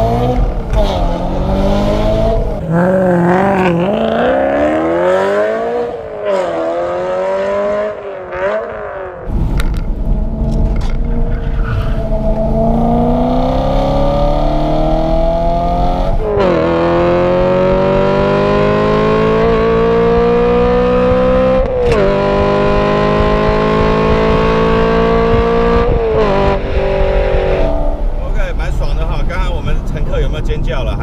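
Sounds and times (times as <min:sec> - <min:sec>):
car engine accelerating with upshifts: 0:00.0 - 0:28.6.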